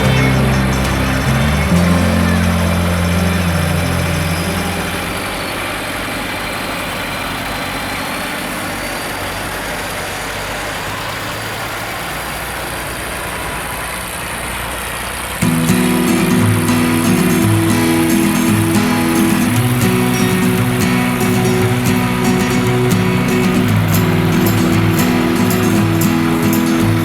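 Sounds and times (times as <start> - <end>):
music: 0.0 - 5.2, 15.4 - 27.0
tractor engines idling: 0.0 - 27.0.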